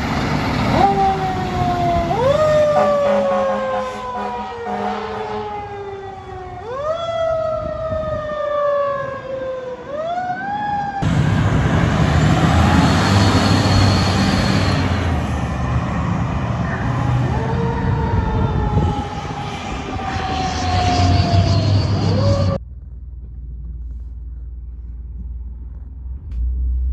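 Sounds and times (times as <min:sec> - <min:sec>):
heavy truck engine rumble: 0:00.0 - 0:06.6, 0:11.0 - 0:26.9
fire truck siren wailing: 0:00.0 - 0:22.6.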